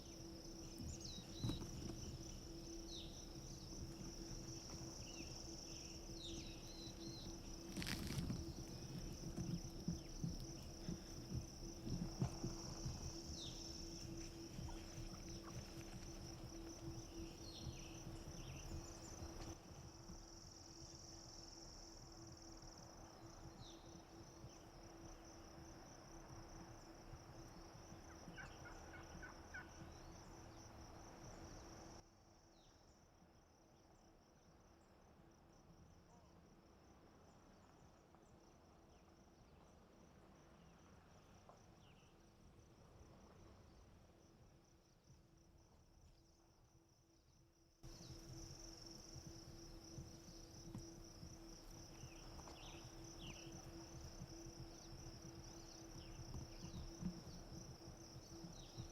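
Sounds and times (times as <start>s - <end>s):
high insect buzz: 0.0s - 32.0s, 47.8s - 58.9s.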